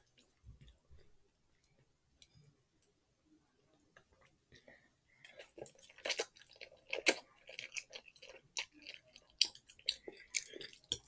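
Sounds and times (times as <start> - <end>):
person chewing noodles: 5.2 - 11.0.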